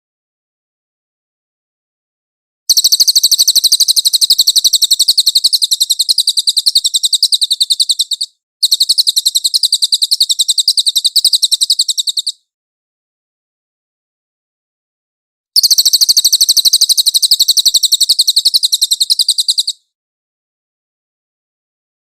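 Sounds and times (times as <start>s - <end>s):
songbird high-pitched trill: 2.7s - 12.4s, 15.6s - 19.9s.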